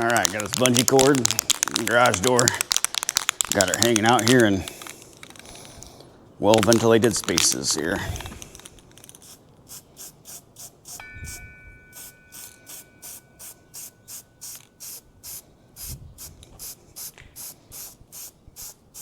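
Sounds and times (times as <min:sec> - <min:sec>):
spray paint can bursts: 0:09.0 - 0:11.4, 0:12.0 - 0:19.0
wind rumble on microphone: 0:11.0 - 0:11.8, 0:15.8 - 0:16.6.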